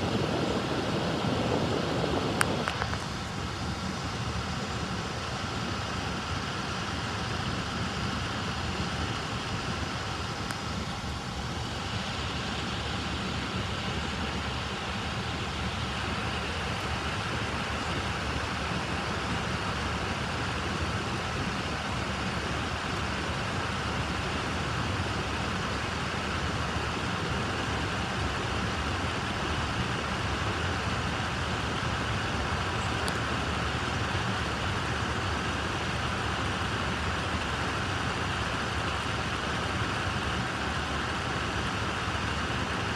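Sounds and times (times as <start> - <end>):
freight train rumbling: 0.0 - 42.9.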